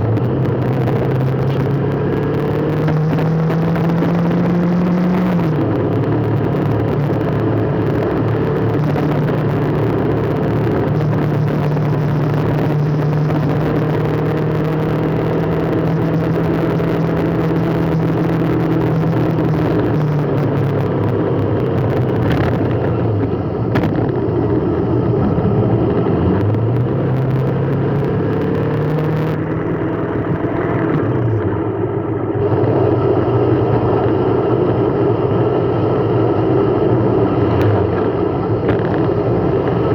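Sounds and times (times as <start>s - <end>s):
road noise: 0.0s - 39.9s
vehicle engine running: 0.0s - 39.9s.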